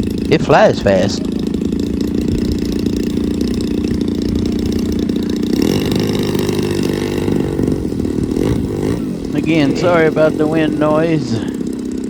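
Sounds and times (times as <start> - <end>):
small two-stroke engine running: 0.0 - 12.0
wind rumble on microphone: 2.1 - 3.2.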